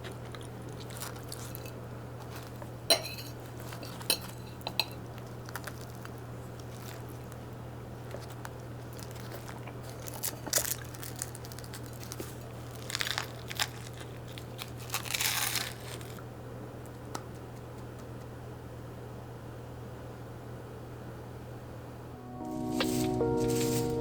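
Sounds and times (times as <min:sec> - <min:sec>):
crinkling and tearing: 0:00.0 - 0:16.2.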